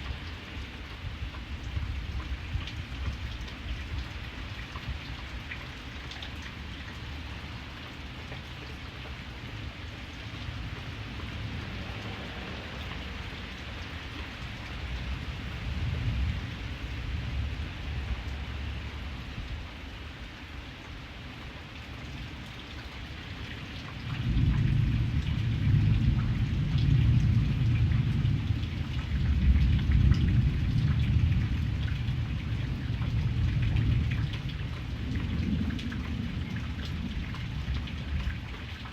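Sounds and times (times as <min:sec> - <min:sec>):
heavy rain falling: 0:00.0 - 0:38.9
thunder rumbling: 0:24.2 - 0:38.6.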